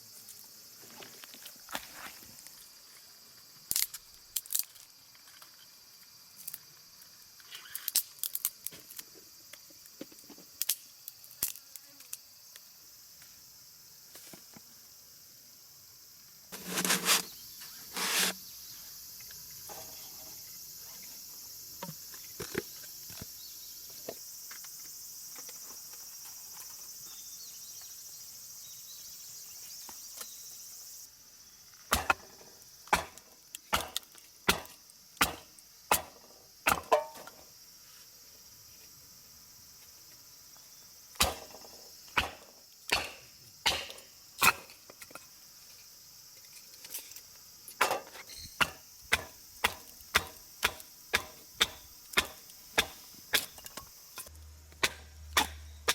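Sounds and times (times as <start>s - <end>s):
high-pitched insect chorus: 0.0s - 55.9s
chopping knocks on wood: 33.8s - 37.1s, 41.2s - 41.6s, 42.2s - 44.0s, 48.6s - 53.5s.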